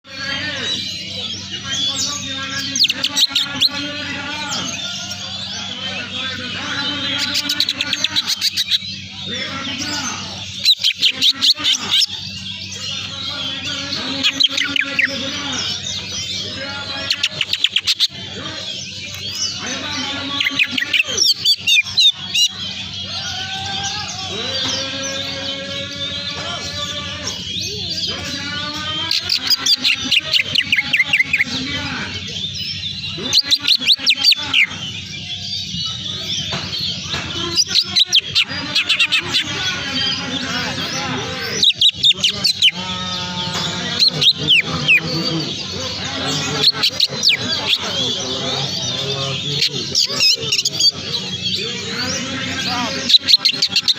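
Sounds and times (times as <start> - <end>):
songbirds chirping: 0.0 - 53.9.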